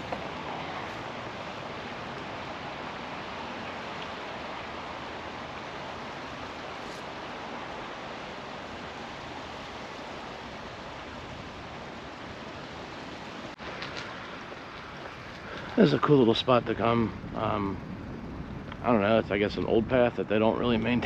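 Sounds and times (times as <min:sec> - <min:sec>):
wind noise on microphone: 0:08.5 - 0:21.0.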